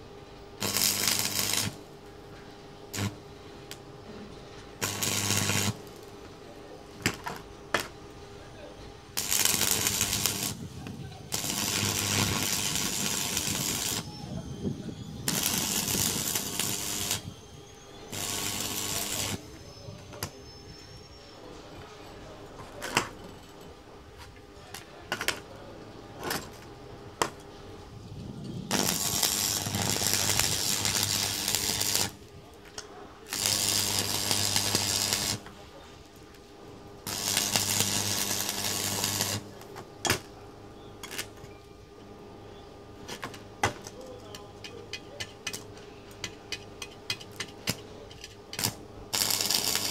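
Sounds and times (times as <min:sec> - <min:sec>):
arc welding crackling hiss: 0:00.6 - 0:04.0, 0:04.6 - 0:08.0, 0:09.1 - 0:21.2, 0:26.2 - 0:40.4, 0:47.2 - 0:49.9.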